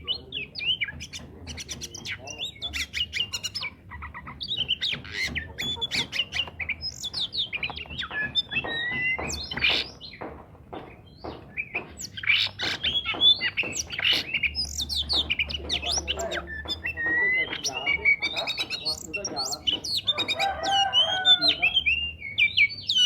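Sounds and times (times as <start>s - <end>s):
bird singing whistled notes: 4.4s - 10.2s, 10.9s - 23.0s.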